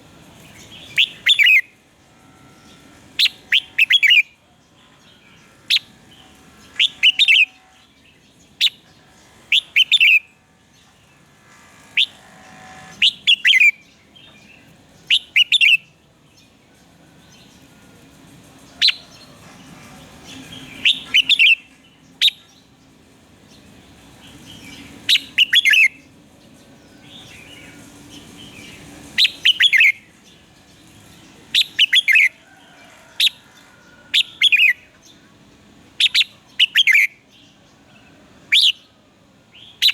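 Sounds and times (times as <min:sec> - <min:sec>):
bird singing short phrases: 0:36.0 - 0:37.2.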